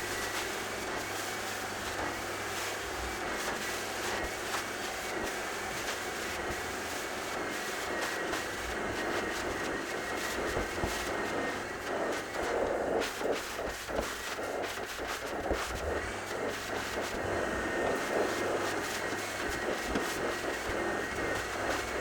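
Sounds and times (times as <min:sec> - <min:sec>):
carpet vacuum machine running: 0:00.0 - 0:22.0.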